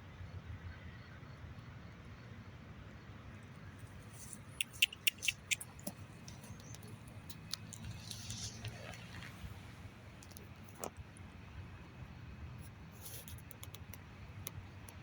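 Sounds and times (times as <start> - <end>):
squirrel making sharp clicks: 3.8 - 9.5.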